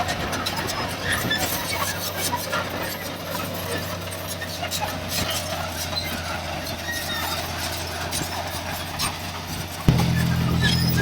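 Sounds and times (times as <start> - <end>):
heavy diesel machinery running: 9.9 - 11.0.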